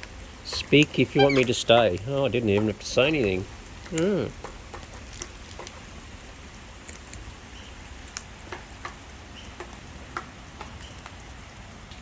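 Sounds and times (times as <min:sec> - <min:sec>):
steady rain: 0:00.0 - 0:12.0
light taps and ticks: 0:02.5 - 0:05.8, 0:09.6 - 0:11.2.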